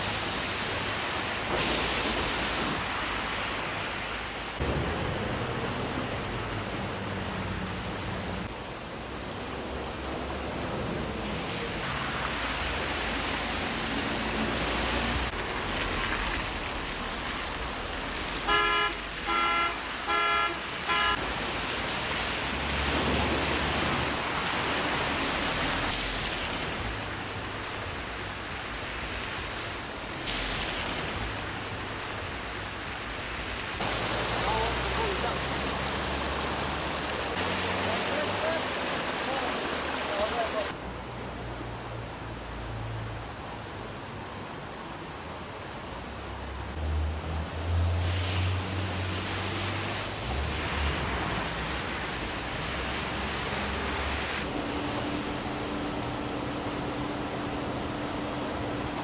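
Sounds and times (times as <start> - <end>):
cars driving through water: 0.0 - 59.0
heavy rain and floodwater rushing: 0.0 - 59.0
car horn toots: 18.4 - 21.2.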